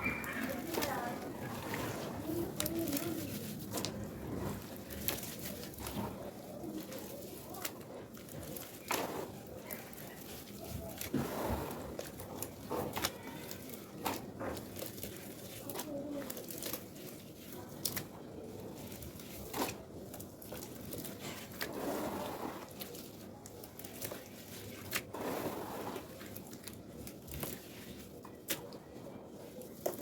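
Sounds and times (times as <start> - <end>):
soft squishing: 0.0 - 30.0.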